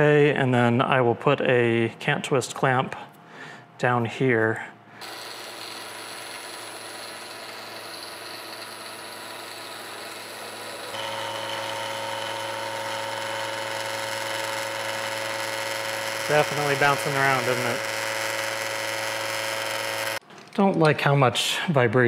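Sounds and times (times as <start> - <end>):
milling machine running: 5.0 - 20.2.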